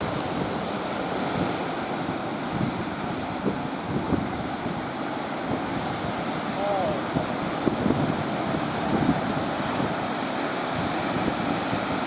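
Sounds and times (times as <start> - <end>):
ocean waves rushing: 0.0 - 12.0
wind buffeting microphone: 0.0 - 12.0.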